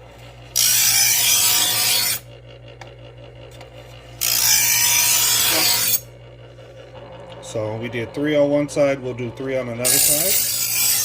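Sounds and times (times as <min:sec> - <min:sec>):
knife sharpener grinding blade: 0:00.5 - 0:02.3, 0:04.2 - 0:06.1, 0:09.8 - 0:11.0.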